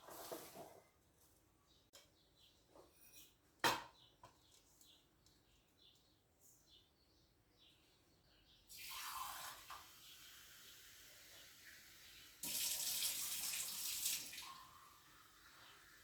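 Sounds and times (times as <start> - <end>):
tap water running into sink: 8.7 - 14.8.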